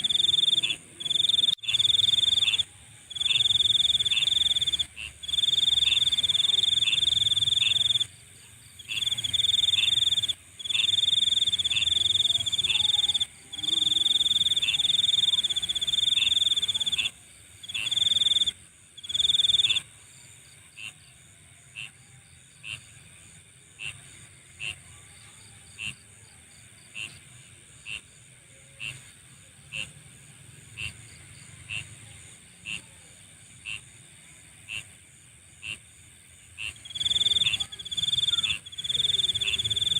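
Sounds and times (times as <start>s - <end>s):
insect short high chirp: 0.0s - 8.1s, 36.6s - 39.9s
insect high-pitched trill: 0.0s - 19.9s, 36.6s - 39.9s.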